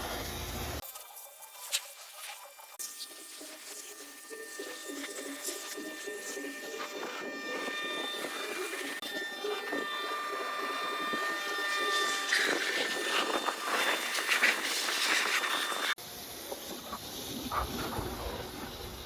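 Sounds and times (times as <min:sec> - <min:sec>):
pressure washer motor whine: 0:02.8 - 0:17.5
water spraying hiss: 0:12.3 - 0:16.0.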